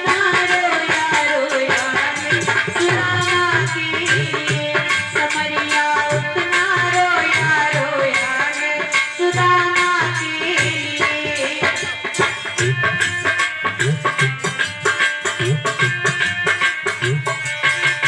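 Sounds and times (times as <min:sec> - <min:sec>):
fast percussion strokes: 0:00.0 - 0:18.0.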